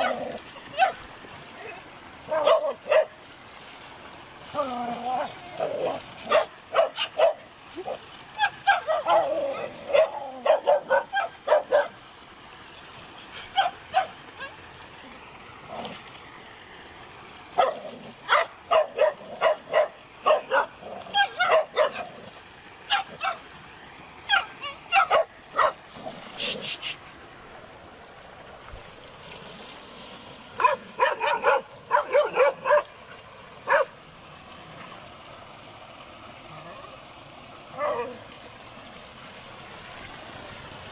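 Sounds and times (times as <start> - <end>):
dogs barking: 0.0 - 1.0, 2.3 - 3.2, 5.6 - 12.0, 13.5 - 14.5, 17.6 - 22.2, 22.8 - 23.4, 24.2 - 25.8, 30.6 - 32.9, 33.6 - 34.0, 37.7 - 38.2
dog yelping: 8.4 - 12.0, 17.6 - 22.1, 22.9 - 23.4, 24.3 - 25.8.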